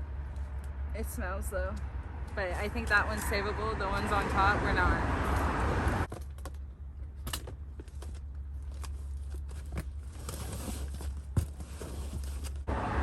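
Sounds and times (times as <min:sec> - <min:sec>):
items rummaged in a box: 0:06.1 - 0:12.7.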